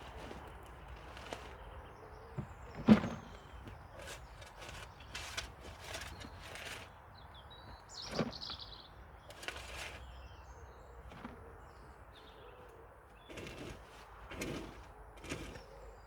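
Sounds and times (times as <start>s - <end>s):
garden tool scraping wood chips: 0.0s - 1.8s, 3.0s - 7.0s, 9.2s - 10.3s, 13.2s - 16.0s
birds chirping: 7.1s - 13.8s.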